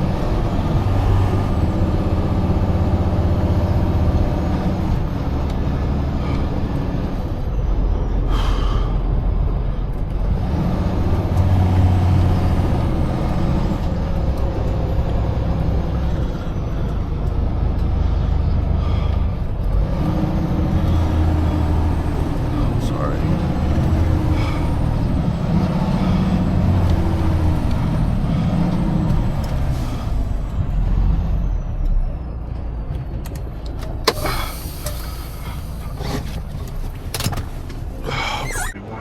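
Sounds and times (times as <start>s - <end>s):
diesel truck engine drone: 0.0s - 39.0s
road noise: 0.0s - 39.0s
brief air hiss: 34.1s - 35.4s.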